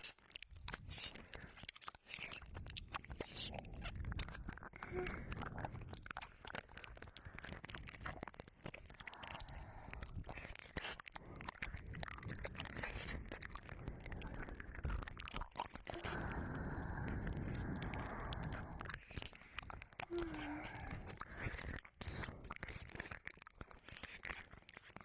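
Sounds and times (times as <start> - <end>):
wet mouth sounds and licking: 0.0 - 25.0.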